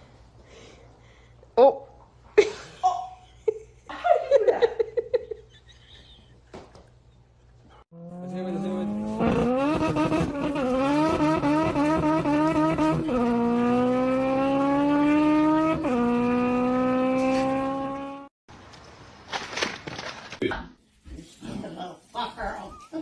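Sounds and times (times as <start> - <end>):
engine accelerating: 7.9 - 18.3.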